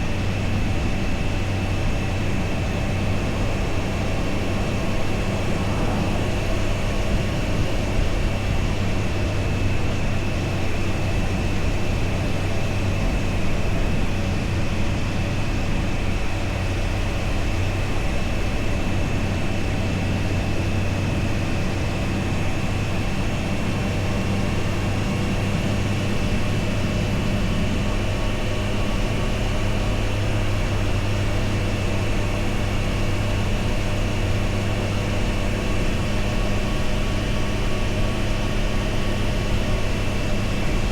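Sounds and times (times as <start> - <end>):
motorcycle engine running steadily: 0.0 - 40.9.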